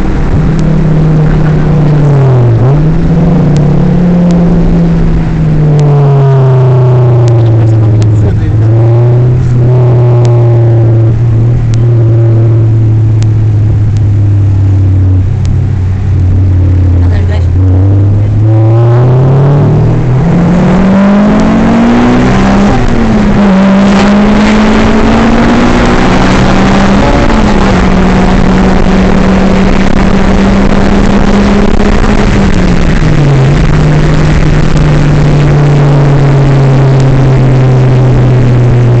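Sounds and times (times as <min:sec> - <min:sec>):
car engine accelerating hard: 0:00.0 - 0:39.0.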